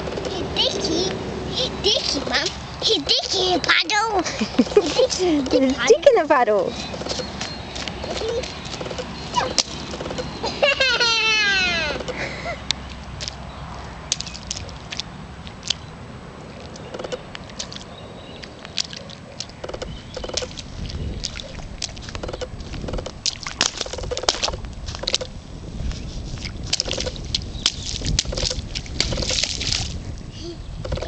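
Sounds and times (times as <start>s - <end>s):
splashing in puddle water: 4.2s - 10.4s, 11.7s - 25.4s, 26.1s - 30.2s.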